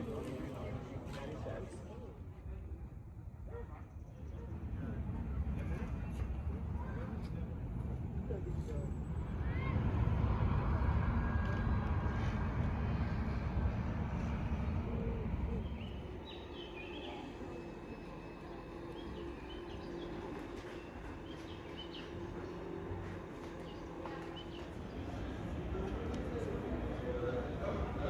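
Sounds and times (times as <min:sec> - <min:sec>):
vehicle rumbling past: 0:07.6 - 0:28.0
birds chirping: 0:15.6 - 0:25.0.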